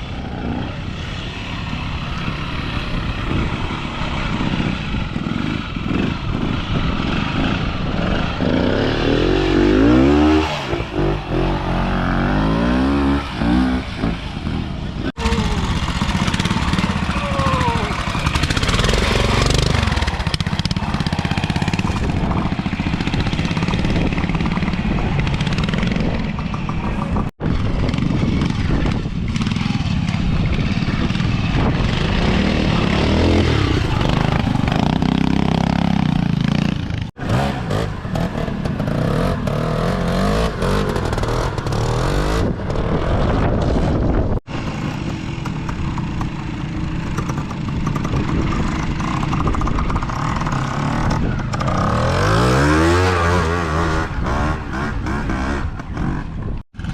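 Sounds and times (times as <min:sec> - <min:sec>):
motorcycle engines revving: 0:00.0 - 0:56.9.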